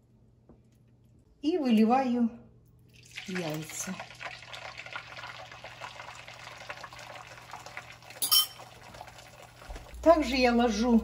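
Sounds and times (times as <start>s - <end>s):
eggs sizzling in a frying pan: 3.0s - 11.0s.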